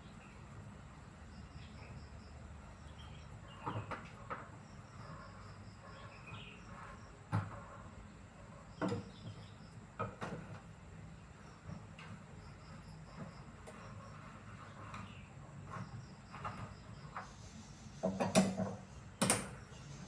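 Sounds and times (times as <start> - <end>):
faint insect chirping: 0.0 - 20.0
sharp knocks and clatters: 8.7 - 10.8, 18.0 - 19.8.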